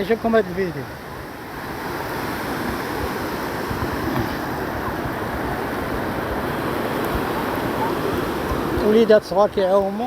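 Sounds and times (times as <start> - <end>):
surf washing on beach: 0.0 - 10.0
wind buffeting microphone: 0.0 - 10.0.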